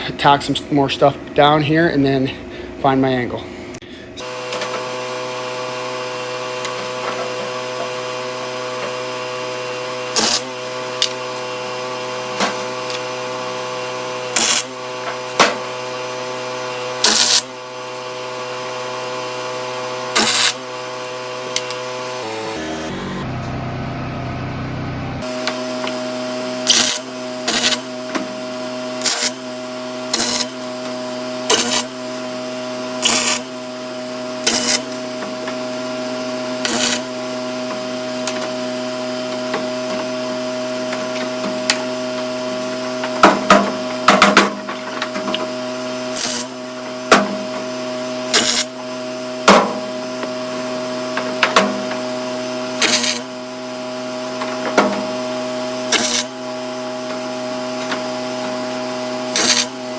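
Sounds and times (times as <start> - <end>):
short welding arc bursts: 14.4 - 14.7, 17.0 - 17.4, 52.8 - 53.2.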